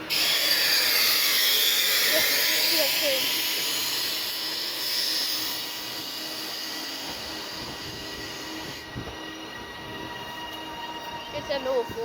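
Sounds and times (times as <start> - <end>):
thin steady whining tones: 0.0 - 12.0
train rail and wheel noise: 0.0 - 12.0.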